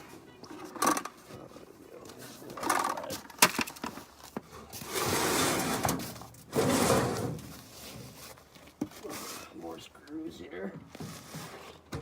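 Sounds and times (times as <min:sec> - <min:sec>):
scraping rattles: 0:04.9 - 0:07.6.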